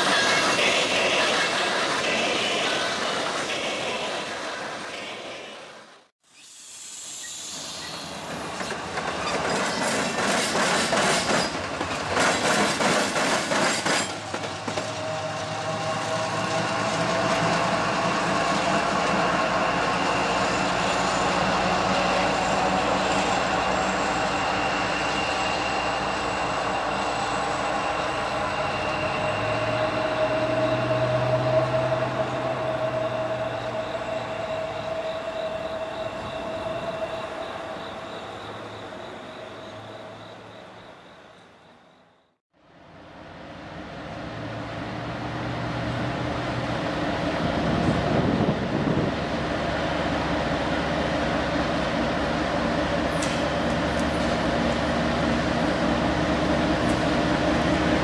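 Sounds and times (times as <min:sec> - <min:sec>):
diesel locomotive engine whine: 0:00.0 - 0:58.0
hopper cars rolling past: 0:07.8 - 0:40.3
wheels clattering over rail joints: 0:08.2 - 0:15.2.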